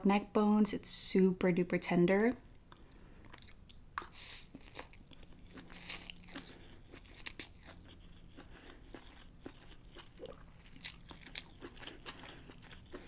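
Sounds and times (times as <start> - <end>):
chewing with wet mouth clicks: 2.7 - 13.0.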